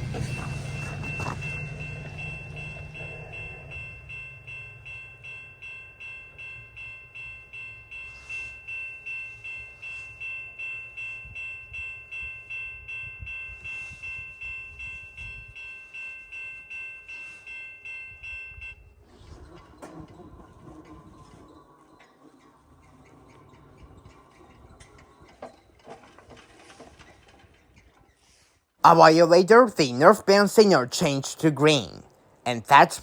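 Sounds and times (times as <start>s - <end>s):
level crossing warning bell: 0.0s - 21.9s, 28.8s - 33.0s.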